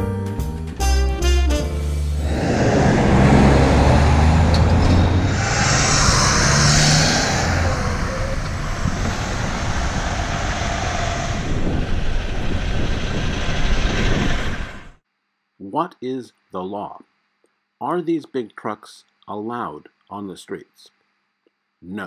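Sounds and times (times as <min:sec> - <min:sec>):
truck diesel engine humming: 0:01.9 - 0:14.8
road noise: 0:01.9 - 0:15.0
city street traffic: 0:02.0 - 0:09.1
loud hiss: 0:05.1 - 0:14.9.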